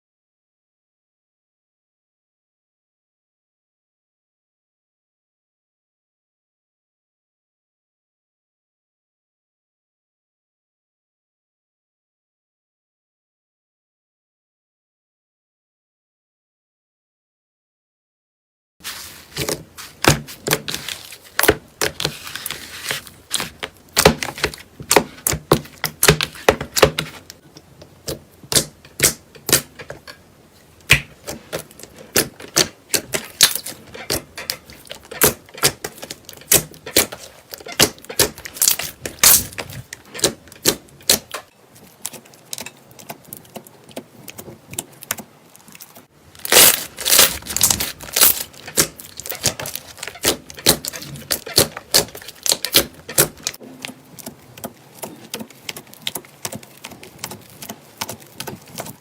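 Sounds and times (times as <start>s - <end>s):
slime squishing with clicks and pops: 23.0s - 30.2s, 30.8s - 59.0s.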